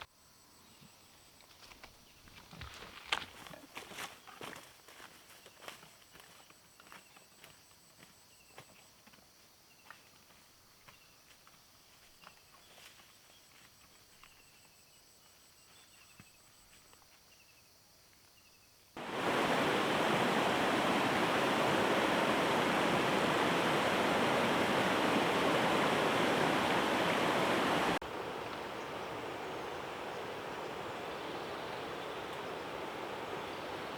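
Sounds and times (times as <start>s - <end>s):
river water rushing: 19.0s - 33.9s.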